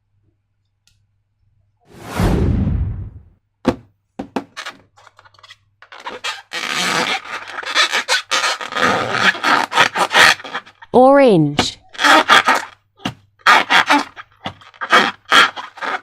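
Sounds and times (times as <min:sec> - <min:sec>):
rush of noise: 0:01.9 - 0:03.3.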